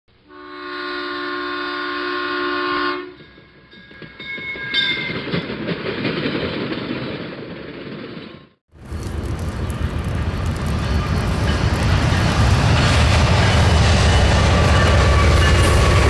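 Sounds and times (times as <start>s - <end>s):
locomotive air horn: 0.2s - 3.2s
train rumble and clatter: 3.1s - 16.0s.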